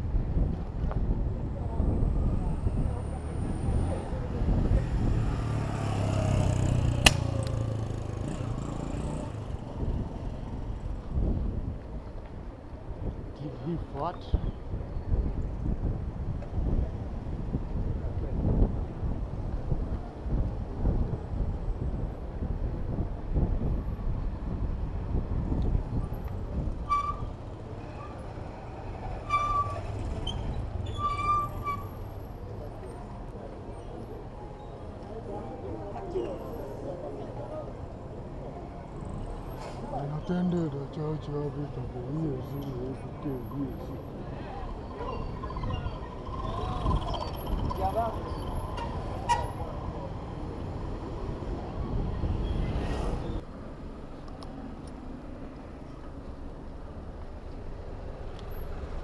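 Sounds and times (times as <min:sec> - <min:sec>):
city traffic rumble: 0:00.0 - 0:59.0
road and wind noise: 0:00.0 - 0:59.0
vehicle engine running: 0:00.2 - 0:12.3, 0:23.5 - 0:59.0
sharp click: 0:07.0 - 0:07.9.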